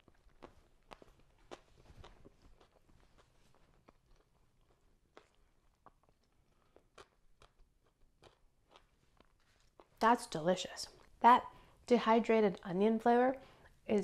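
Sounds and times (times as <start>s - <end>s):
soft crunches: 0.0s - 9.9s
faint chewing: 0.0s - 10.0s, 10.8s - 11.2s.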